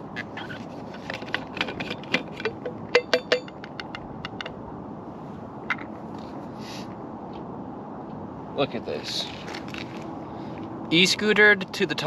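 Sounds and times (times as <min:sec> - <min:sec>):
hard cups clinking: 0:01.0 - 0:04.5.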